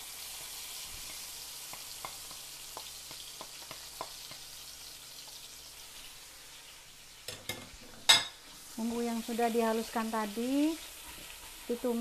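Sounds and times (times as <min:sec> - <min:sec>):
spice paste sizzling in oil: 0:00.0 - 0:12.0
spatula clicking against pan: 0:01.7 - 0:04.5.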